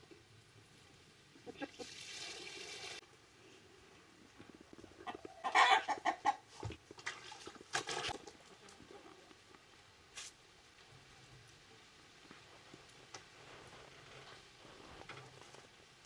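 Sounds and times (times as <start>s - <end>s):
chickens clucking: 1.4s - 1.9s, 5.0s - 6.6s
chickens squawking: 5.1s - 6.4s.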